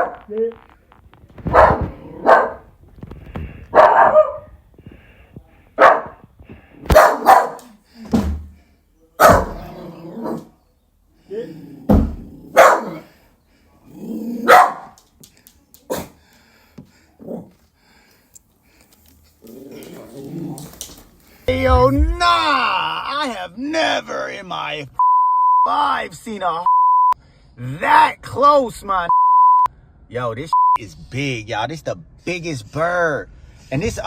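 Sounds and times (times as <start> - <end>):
dog barking: 0.0 - 0.3, 1.4 - 2.7, 3.7 - 4.5, 5.8 - 6.2, 6.9 - 7.8, 9.2 - 10.5, 12.5 - 13.1, 14.4 - 15.0, 15.9 - 16.2
low thumps: 21.5 - 22.5.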